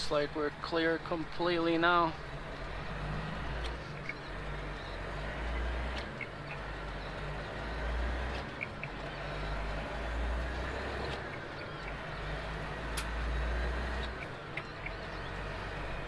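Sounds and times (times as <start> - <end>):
diesel truck engine rumble: 0.0 - 16.0
faint clicks: 2.2 - 12.0.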